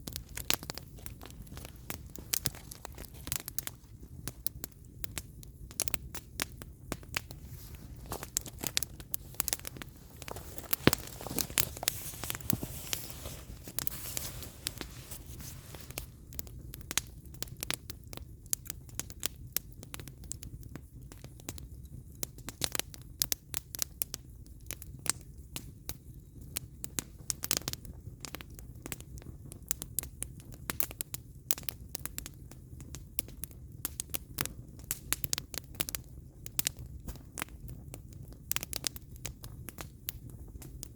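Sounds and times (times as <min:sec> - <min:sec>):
fire hissing: 0:00.0 - 0:16.8
fire crackling and popping: 0:00.0 - 0:40.9
low fire rumble: 0:00.0 - 0:40.9.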